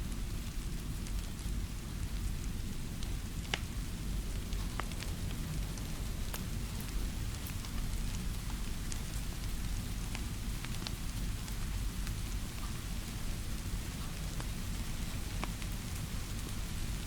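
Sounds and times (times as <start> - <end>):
steady rainfall: 0.0 - 17.0
fire popping and crackling: 3.0 - 12.2.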